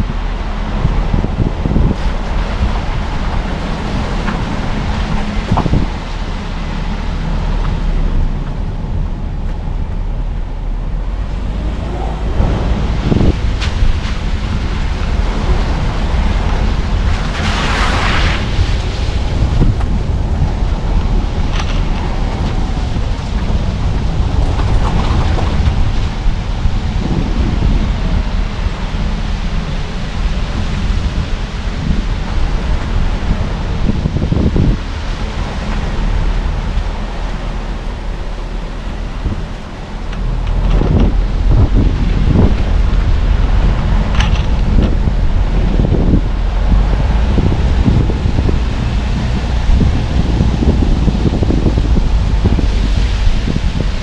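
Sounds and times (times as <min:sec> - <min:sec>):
car road and engine rumble: 0:00.0 - 0:54.0
wind on the microphone: 0:00.0 - 0:54.0.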